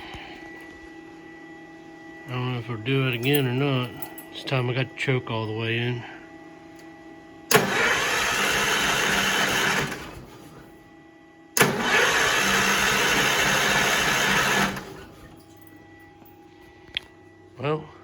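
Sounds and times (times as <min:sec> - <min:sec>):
engine cranking on starter: 0:07.5 - 0:10.5, 0:11.6 - 0:15.2.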